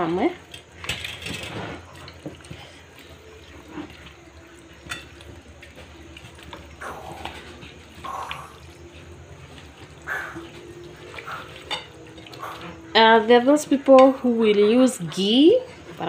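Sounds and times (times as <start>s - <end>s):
faint steady hum: 0.0s - 16.0s
wet squishing of meat: 1.7s - 13.0s.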